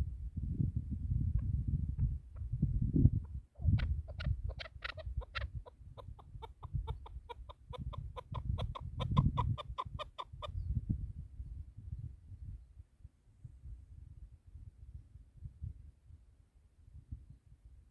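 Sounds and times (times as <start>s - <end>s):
low wind rumble: 0.0s - 16.0s
partridge clucking calls: 3.6s - 10.5s.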